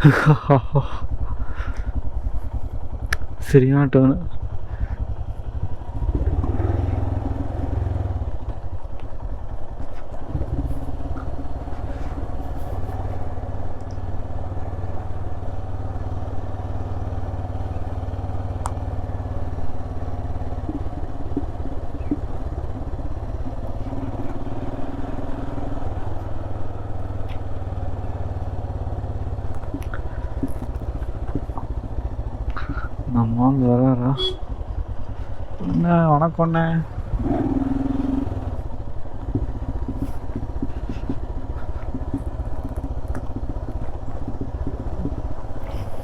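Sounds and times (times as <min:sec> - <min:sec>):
motorcycle engine running: 0:00.0 - 0:46.0
faint clicks and rattles: 0:29.2 - 0:33.2, 0:38.5 - 0:46.0.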